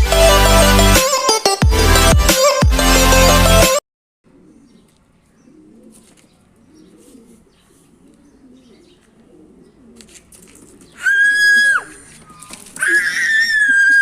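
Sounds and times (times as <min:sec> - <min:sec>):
pigeons cooing: 0:04.3 - 0:13.0.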